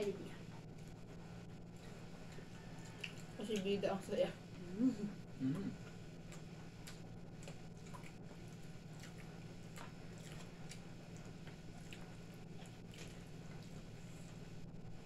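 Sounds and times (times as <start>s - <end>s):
steady low hum: 0.0s - 15.0s
chewing and squishy mouth noises: 1.8s - 3.8s, 6.2s - 14.5s.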